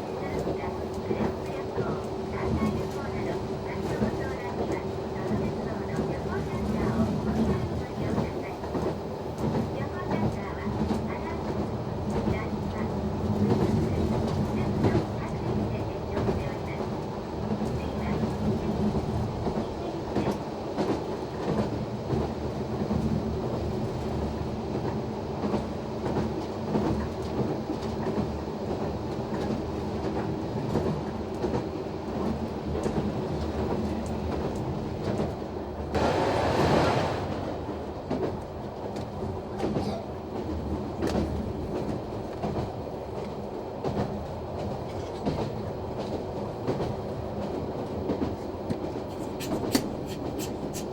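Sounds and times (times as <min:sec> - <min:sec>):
railcar engine running: 0:26.6 - 0:50.9
loud rushing noise: 0:36.0 - 0:38.3.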